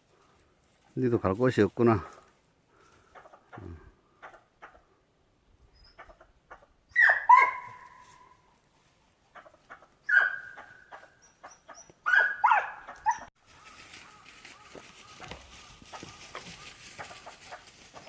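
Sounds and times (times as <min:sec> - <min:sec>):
dog yelping barks: 0:06.9 - 0:08.3, 0:10.0 - 0:13.3.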